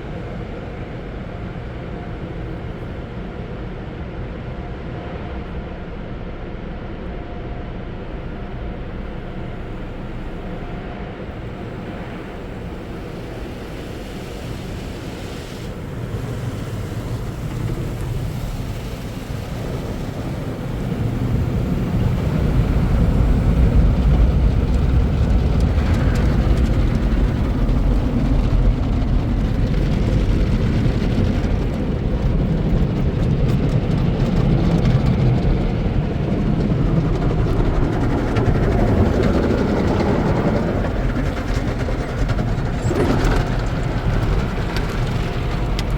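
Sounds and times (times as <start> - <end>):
car wash machinery: 8.0 - 45.9
water spraying: 11.4 - 29.6.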